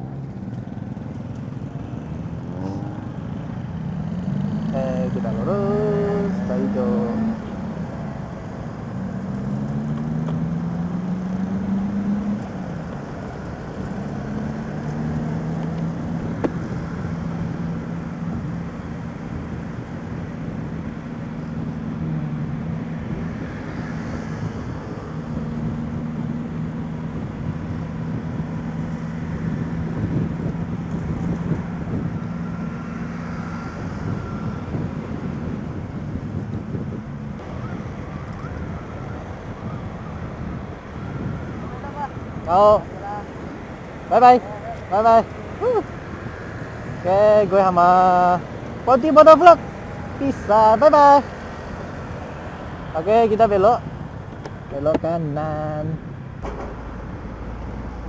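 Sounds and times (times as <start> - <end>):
motorcycle engine accelerating: 0.0 - 42.3
road noise: 0.0 - 58.0.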